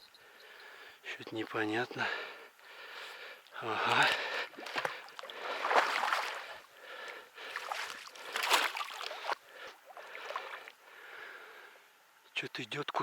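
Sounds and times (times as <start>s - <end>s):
water sloshing and splashing: 3.7s - 10.8s.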